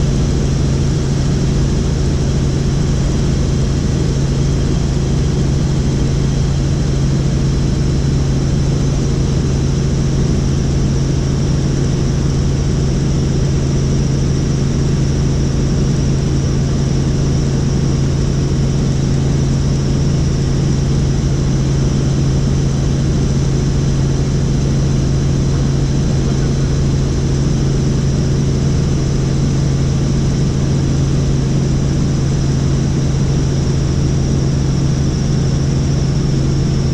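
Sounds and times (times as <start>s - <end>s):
helicopter engine and rotors drone: 0.0s - 36.9s.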